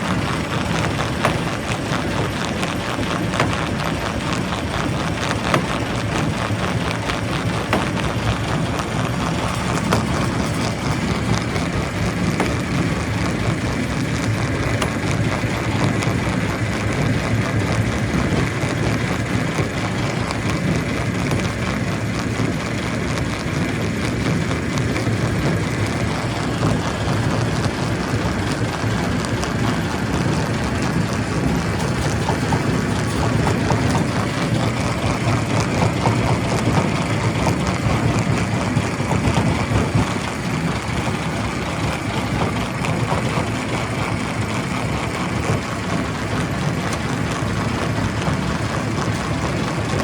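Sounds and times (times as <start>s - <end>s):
rocks knocking and clattering: 0.0s - 17.1s, 24.7s - 43.6s
high steady whine: 0.0s - 50.0s
rock crusher running: 0.0s - 50.0s.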